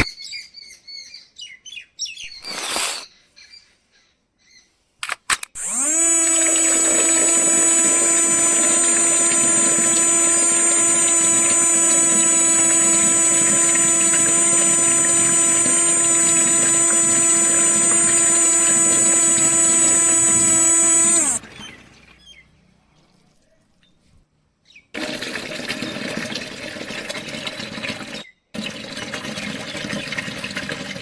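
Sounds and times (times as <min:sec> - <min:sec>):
small electric pump motor whining: 0:05.5 - 0:22.2.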